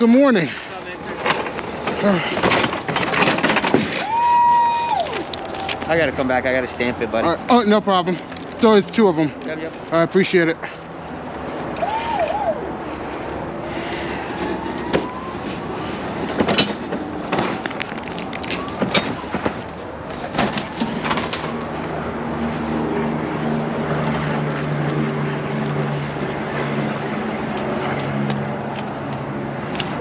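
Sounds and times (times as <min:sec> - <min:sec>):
vehicle engine humming: 0:00.0 - 0:30.0
sharp knocks and clanks: 0:01.0 - 0:04.1, 0:16.0 - 0:18.0.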